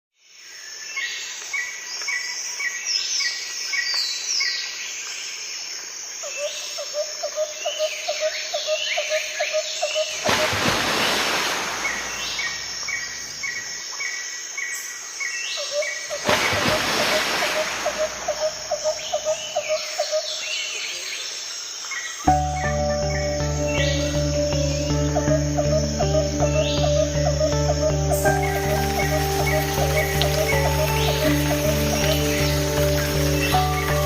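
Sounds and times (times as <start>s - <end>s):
birds chirping and whistling: 15.8s - 20.6s, 22.3s - 34.0s.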